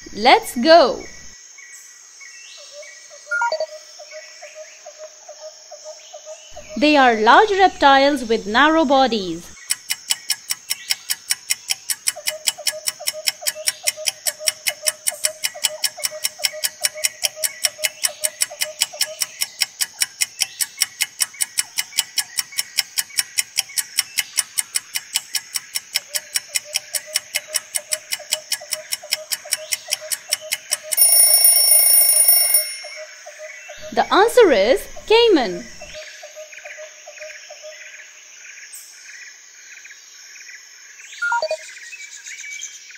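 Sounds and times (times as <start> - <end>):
clock ticking: 6.6 - 33.0
alarm buzz: 30.4 - 33.1.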